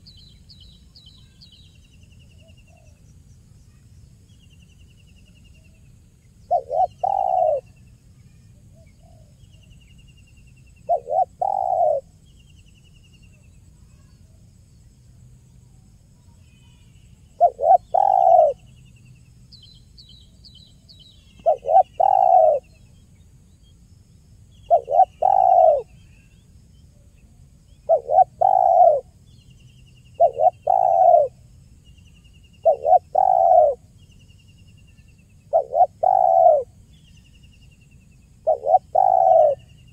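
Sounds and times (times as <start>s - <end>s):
small bird chirping faintly: 0.0s - 39.9s
dove cooing: 6.5s - 7.8s, 10.9s - 12.1s, 17.4s - 18.7s, 21.4s - 22.8s, 24.7s - 26.0s, 27.8s - 29.1s, 30.2s - 31.4s, 32.6s - 33.8s, 35.5s - 36.7s, 38.4s - 39.7s.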